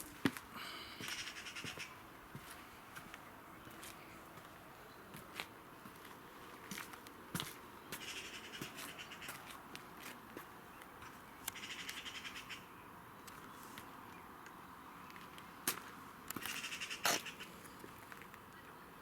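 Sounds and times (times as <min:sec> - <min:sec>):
rapid chattering bird calls: 0:01.0 - 0:02.0, 0:08.0 - 0:09.5, 0:11.0 - 0:12.8, 0:16.4 - 0:17.8.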